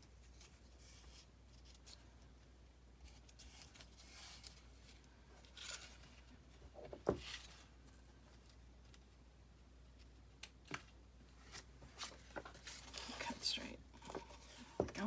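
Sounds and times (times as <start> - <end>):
paper rustling and scraping: 3.0 - 8.5, 11.4 - 15.0.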